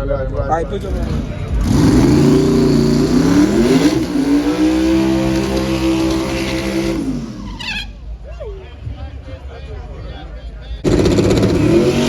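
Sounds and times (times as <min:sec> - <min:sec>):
car engine accelerating hard: 0:00.5 - 0:07.9, 0:10.8 - 0:12.0.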